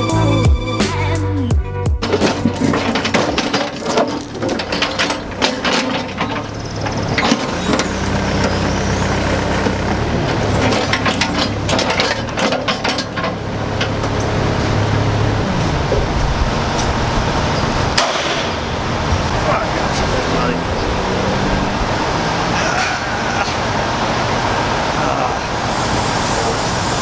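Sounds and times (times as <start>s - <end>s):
diesel engine running: 0.0s - 27.0s
metallic clanks and knocks: 2.0s - 14.7s, 15.9s - 20.4s.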